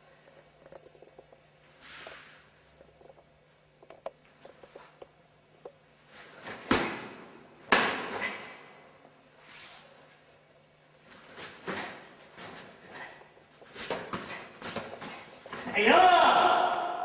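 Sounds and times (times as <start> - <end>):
sharp snaps of karate strikes: 6.5 - 8.6.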